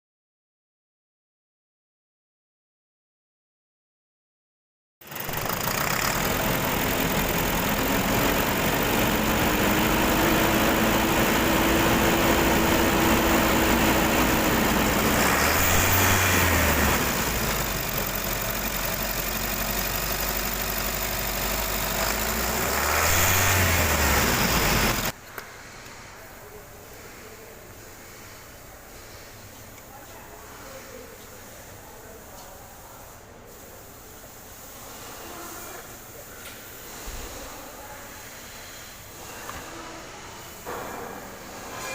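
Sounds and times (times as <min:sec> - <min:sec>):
vehicle engine running: 0:05.0 - 0:25.2.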